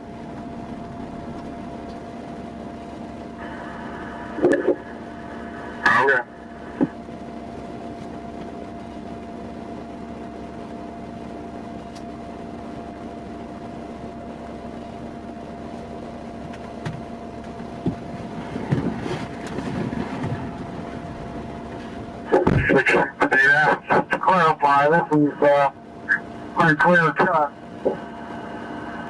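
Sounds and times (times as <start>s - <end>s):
steady hum with tone: 0.0s - 29.0s.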